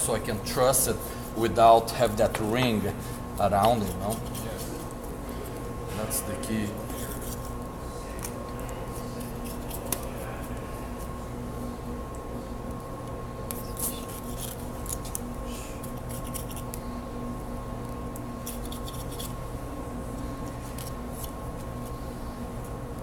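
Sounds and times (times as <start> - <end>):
low machine hum: 0.0 - 23.0
knife cutting and scraping meat: 3.4 - 4.9, 6.8 - 7.6, 8.8 - 11.2, 13.5 - 16.8, 18.4 - 19.4.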